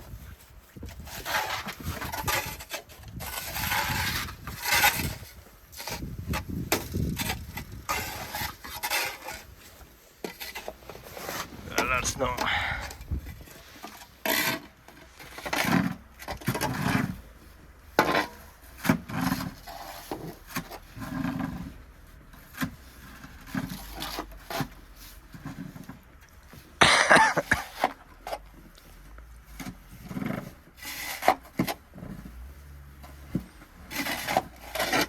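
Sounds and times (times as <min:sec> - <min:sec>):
snow shovel scraping snow: 0:00.9 - 0:06.1, 0:07.0 - 0:12.6.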